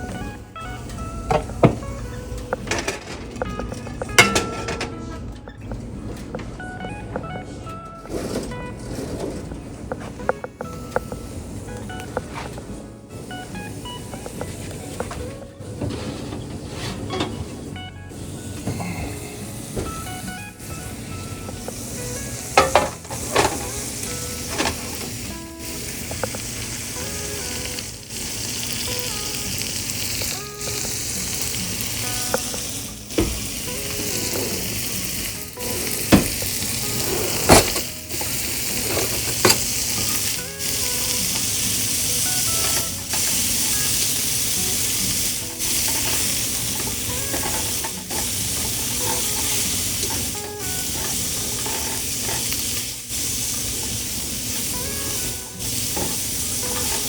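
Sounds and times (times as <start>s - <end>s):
fish sizzling in hot oil: 20.6s - 57.0s.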